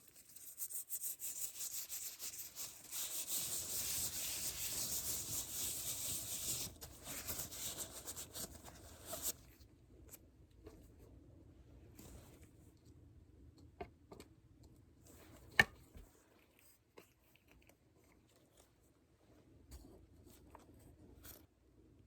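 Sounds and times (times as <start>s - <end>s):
close rubbing and scratching: 0.0s - 9.5s.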